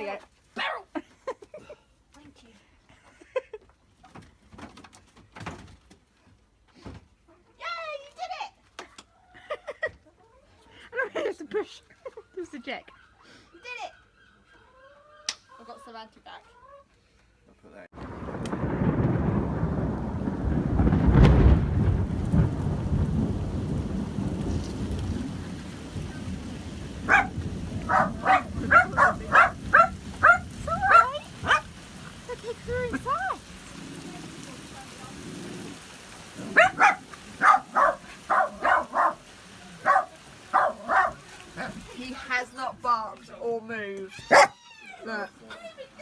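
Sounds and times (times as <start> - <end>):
dog barking: 0.6 - 0.9, 27.0 - 31.7, 36.4 - 41.8, 44.3 - 44.6
thunder rumbling: 18.0 - 42.0
rain hissing: 18.0 - 44.5.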